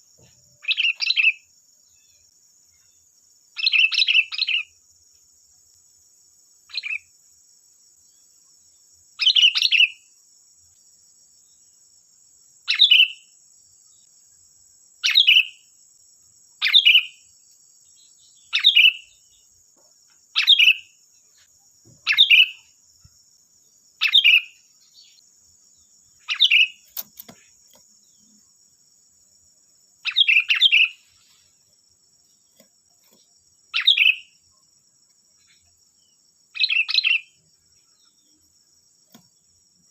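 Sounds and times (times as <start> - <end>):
faint high-pitched hiss: 0.0 - 39.9
bird calling: 15.0 - 15.6, 22.0 - 22.6, 24.0 - 25.2, 26.2 - 27.6, 30.0 - 31.1, 33.8 - 34.3.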